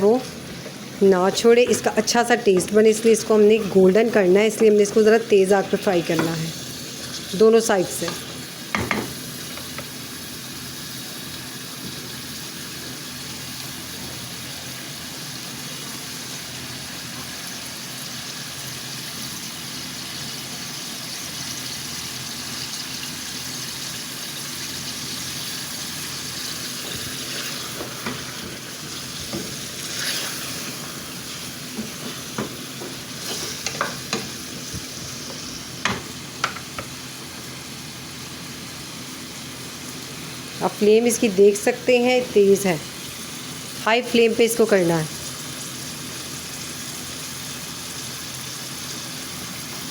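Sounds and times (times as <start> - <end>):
chicken sizzling in hot oil: 0.0 - 49.9.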